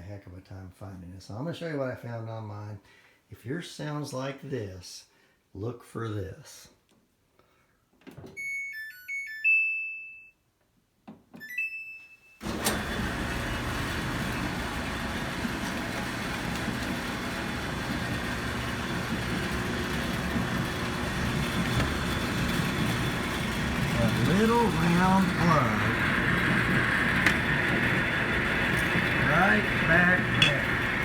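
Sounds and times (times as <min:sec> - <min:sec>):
dryer beeping tune: 0:08.4 - 0:10.3, 0:11.4 - 0:31.0
dryer running with buzzing rattle: 0:12.4 - 0:31.0.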